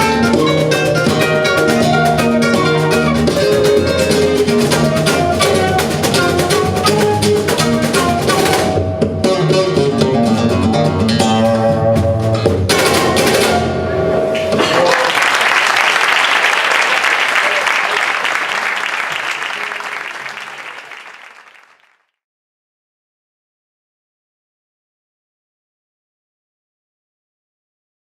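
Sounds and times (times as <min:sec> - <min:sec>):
flamenco guitar: 0:00.0 - 0:15.1
audience applause: 0:14.6 - 0:22.1.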